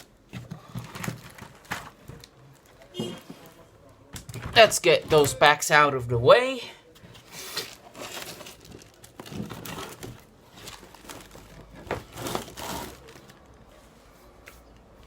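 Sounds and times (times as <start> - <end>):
packaging crinkling and rustling: 0.0 - 3.6, 7.1 - 13.7.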